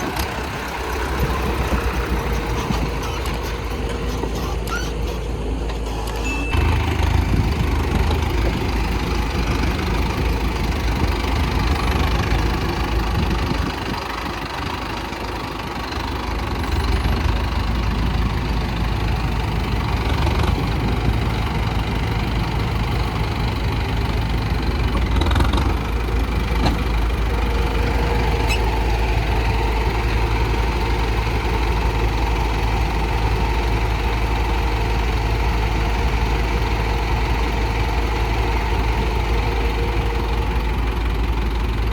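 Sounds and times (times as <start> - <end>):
heavy machinery diesel engine: 0.0 - 41.9.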